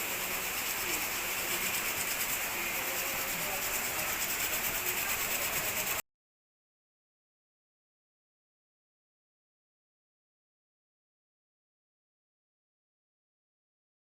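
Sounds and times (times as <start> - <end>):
sandpaper rubbing on metal: 0.0 - 6.0.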